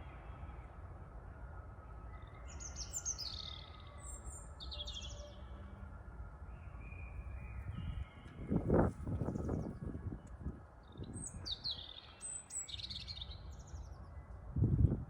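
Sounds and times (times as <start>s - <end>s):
songbird chirping trills: 1.8s - 9.7s
wind rumble: 7.4s - 11.6s, 14.4s - 15.0s.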